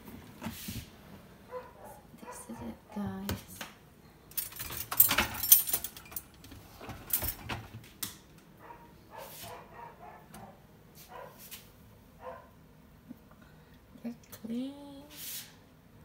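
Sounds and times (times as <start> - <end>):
dishes clattering and clinking: 4.4 - 7.8.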